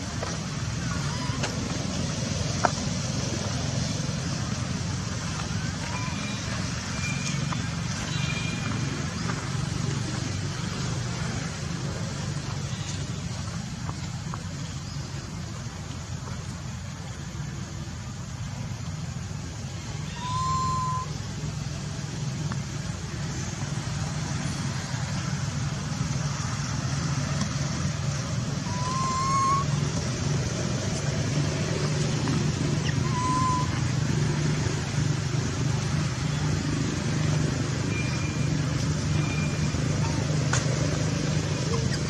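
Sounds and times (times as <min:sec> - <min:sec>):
low engine-like hum: 0:00.0 - 0:42.0
short rising high calls: 0:19.9 - 0:21.3, 0:28.4 - 0:30.3, 0:32.6 - 0:34.1.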